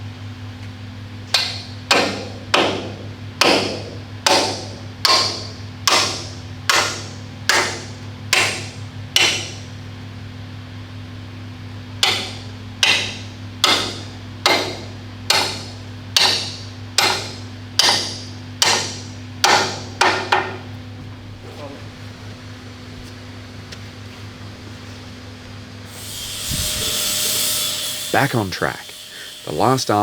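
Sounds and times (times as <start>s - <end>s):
hammer striking steel pin: 1.3s - 9.6s, 12.0s - 20.6s.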